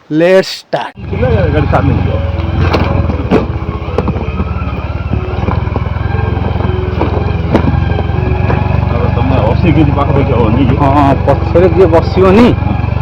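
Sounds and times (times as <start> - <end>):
motorcycle engine running: 1.0 - 13.0
sharp knocks: 2.4 - 8.8.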